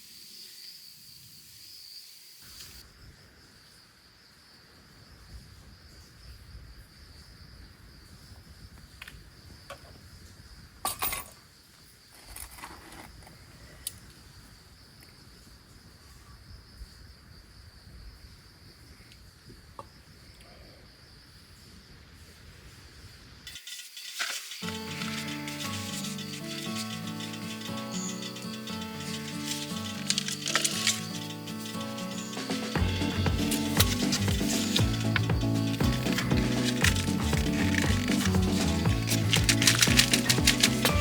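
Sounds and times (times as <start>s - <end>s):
insects chirring: 0.0s - 10.8s, 22.9s - 41.0s.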